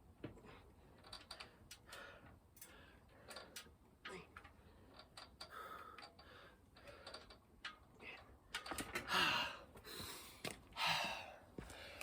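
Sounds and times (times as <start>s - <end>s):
man breathing hard: 1.4s - 7.4s, 9.0s - 12.0s
loud gasping breaths: 9.1s - 12.0s.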